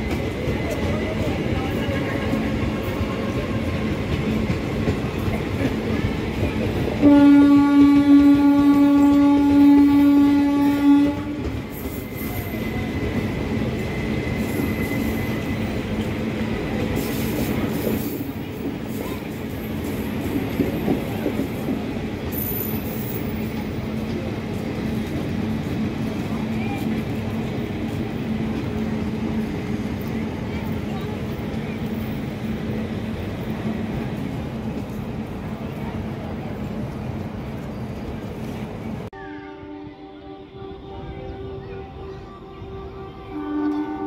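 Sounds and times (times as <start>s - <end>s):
train wheels rumbling and clacking: 0.0s - 39.2s
train horn: 7.0s - 11.6s, 39.1s - 44.0s.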